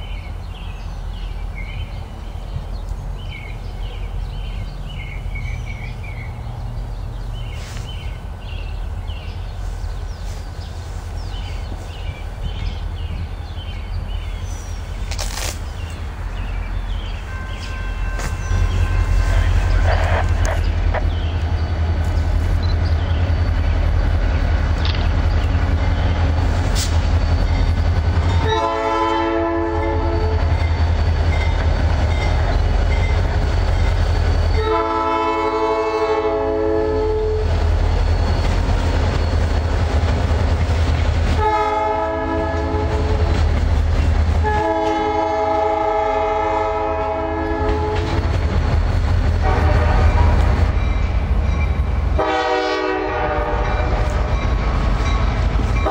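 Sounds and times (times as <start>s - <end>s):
diesel engines rumbling: 0.0s - 55.9s
locomotive air horn blasts: 17.3s - 20.6s, 28.4s - 30.5s, 34.6s - 37.5s, 41.4s - 43.3s, 44.4s - 48.2s, 49.4s - 50.6s, 52.2s - 54.1s.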